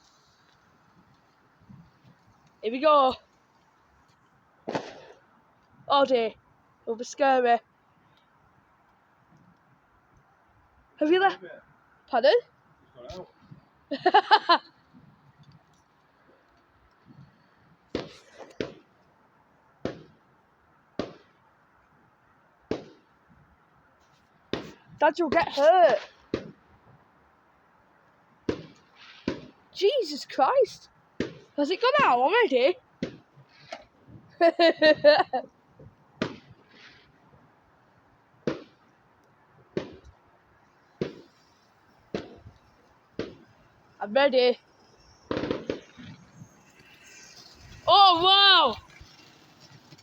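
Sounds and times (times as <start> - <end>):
fireworks bangs: 0.0 - 7.6, 17.1 - 19.0, 19.8 - 20.3, 20.9 - 21.5, 22.6 - 23.3, 24.5 - 26.7, 28.4 - 50.0.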